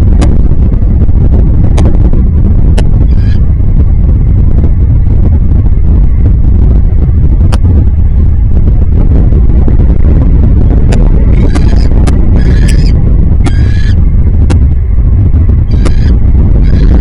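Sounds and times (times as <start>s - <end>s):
wind buffeting microphone: 0.0s - 17.0s
sharp clicks: 10.9s - 13.6s.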